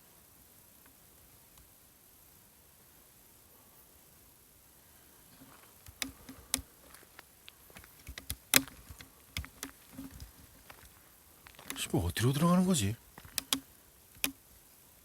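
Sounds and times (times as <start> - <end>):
footsteps crunching over debris: 5.3 - 13.6.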